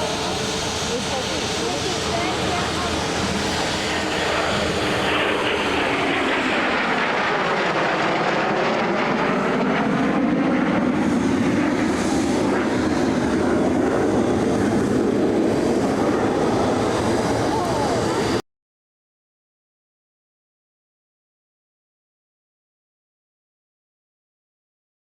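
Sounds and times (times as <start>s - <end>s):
jets flying past roaring: 0.0s - 18.4s.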